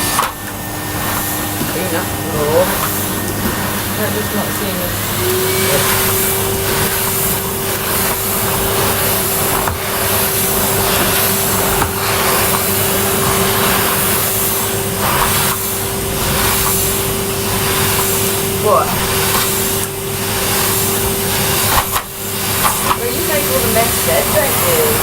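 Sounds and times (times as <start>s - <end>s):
vacuum cleaner running: 0.0s - 25.0s.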